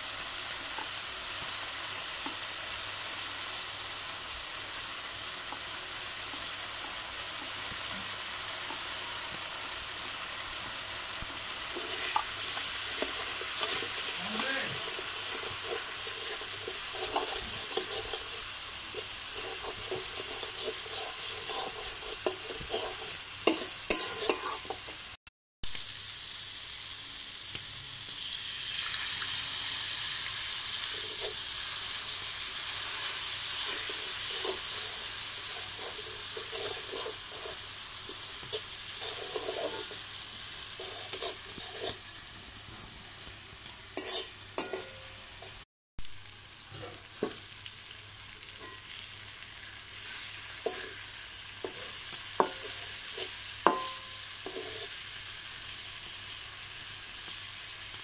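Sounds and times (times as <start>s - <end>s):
masala sizzling in hot oil: 0.0s - 58.0s
spatula scraping metal pan: 11.7s - 25.0s, 32.9s - 42.0s, 44.0s - 45.6s, 50.0s - 51.0s, 51.6s - 55.0s.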